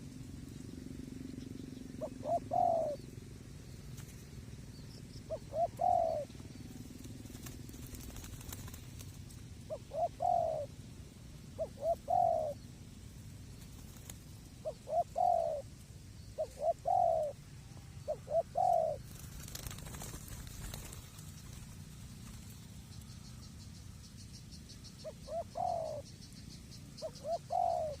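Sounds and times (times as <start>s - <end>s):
dove cooing: 1.8s - 3.0s, 5.2s - 8.8s, 9.6s - 10.8s, 11.5s - 12.6s, 14.6s - 15.7s, 16.4s - 17.4s, 18.0s - 22.4s, 25.0s - 26.2s, 26.9s - 28.0s.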